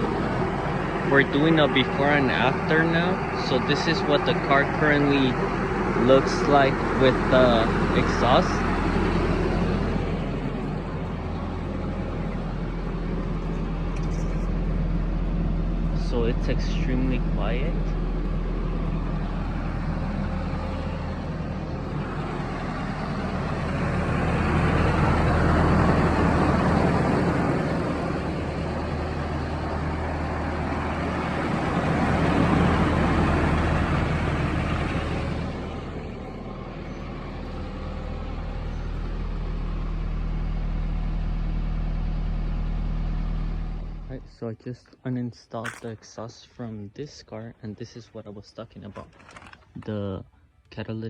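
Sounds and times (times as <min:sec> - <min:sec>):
quiet car engine idling: 0:00.0 - 0:51.0.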